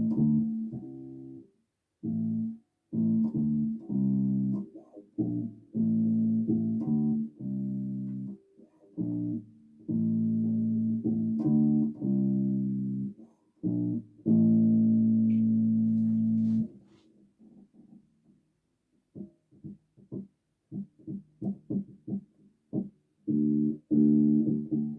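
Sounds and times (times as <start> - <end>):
bass guitar plucked notes: 0.0 - 1.4, 2.0 - 8.4, 9.0 - 16.7, 23.3 - 24.9.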